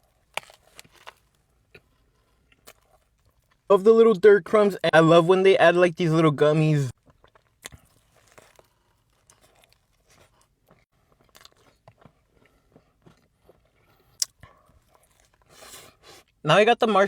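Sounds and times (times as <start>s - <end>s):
chewing with crunchy clicks: 0.0s - 3.7s, 7.0s - 16.4s.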